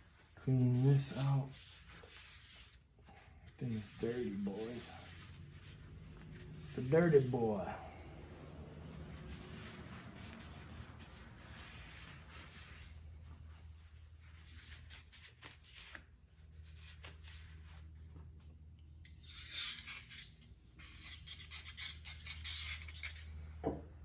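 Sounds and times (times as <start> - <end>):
rubbing and scraping: 3.5 - 16.0.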